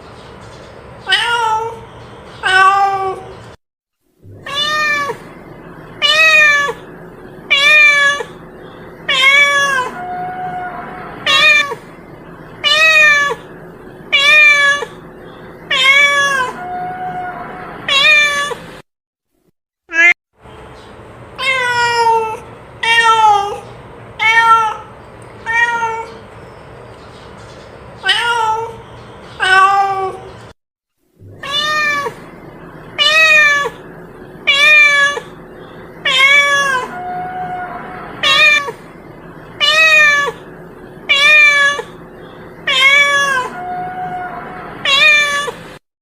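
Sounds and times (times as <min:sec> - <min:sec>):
cat meowing: 0:01.0 - 0:01.8, 0:02.4 - 0:03.3, 0:04.3 - 0:05.3, 0:06.0 - 0:06.8, 0:07.5 - 0:08.4, 0:09.1 - 0:11.8, 0:12.6 - 0:13.5, 0:14.1 - 0:15.0, 0:15.7 - 0:18.6, 0:21.4 - 0:23.6, 0:24.2 - 0:26.2, 0:28.0 - 0:28.8, 0:29.4 - 0:30.3, 0:31.3 - 0:32.3, 0:33.0 - 0:33.8, 0:34.4 - 0:35.4, 0:36.0 - 0:38.9, 0:39.6 - 0:40.5, 0:41.1 - 0:42.0, 0:42.6 - 0:45.6
steady low hum: 0:04.2 - 0:17.9, 0:31.2 - 0:45.8.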